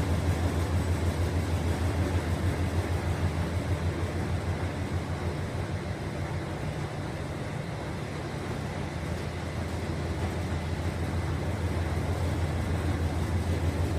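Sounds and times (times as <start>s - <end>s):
washing machine humming and rushing: 0.0s - 13.9s.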